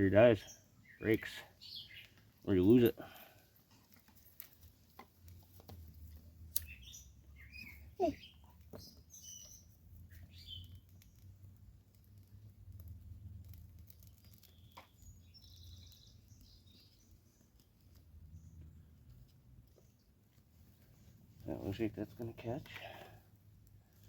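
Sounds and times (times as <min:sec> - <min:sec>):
faint bird chirps: 0:06.6 - 0:11.2, 0:14.2 - 0:17.6.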